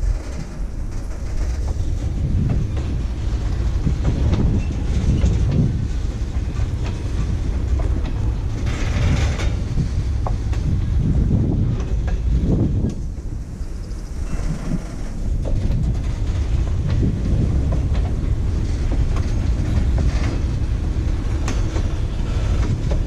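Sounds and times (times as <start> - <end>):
train cars rumbling past: 0.0 - 23.0.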